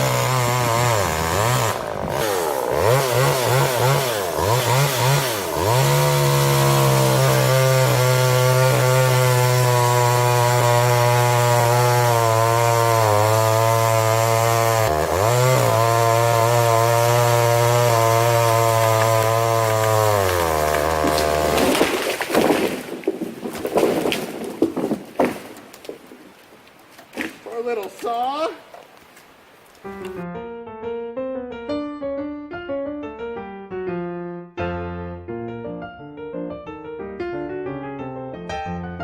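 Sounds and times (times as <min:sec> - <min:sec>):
chainsaw revving and cutting log: 0:00.0 - 0:23.0.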